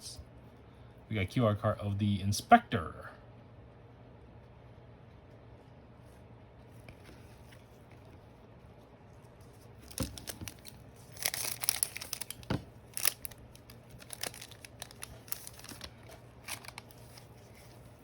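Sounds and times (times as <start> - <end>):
card pack wrapper crinkling: 9.6 - 18.0.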